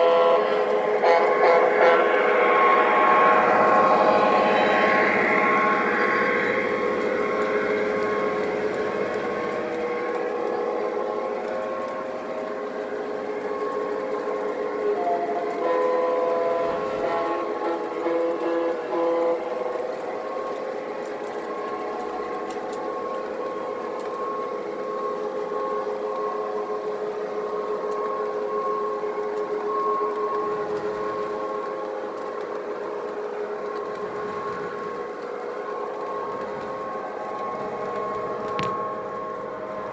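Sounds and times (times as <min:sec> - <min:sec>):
train horn blast: 0:00.0 - 0:20.6
model train motor and gear whine: 0:00.0 - 0:39.9.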